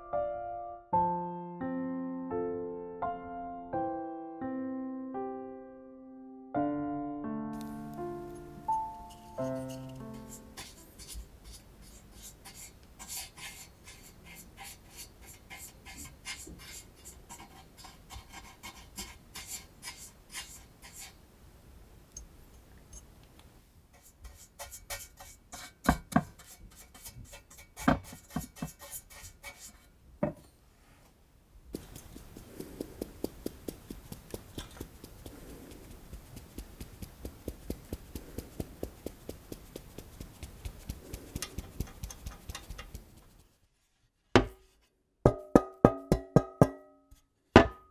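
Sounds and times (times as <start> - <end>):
brush scratching metal pan: 8.2 - 21.2, 23.9 - 29.9, 31.8 - 44.8.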